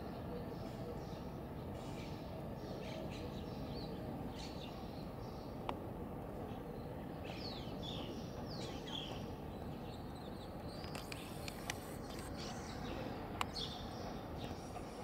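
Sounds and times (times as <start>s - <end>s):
small birds chirping: 6.4s - 15.0s.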